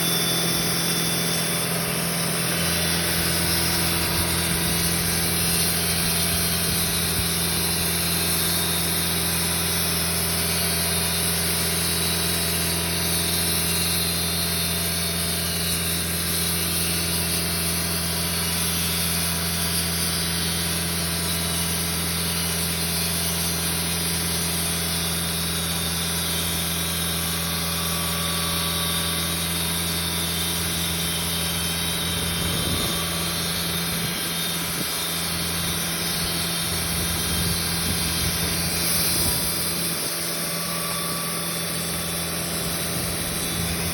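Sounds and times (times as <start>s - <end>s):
sawmill engine running: 0.0s - 43.9s
low hum: 31.5s - 43.9s.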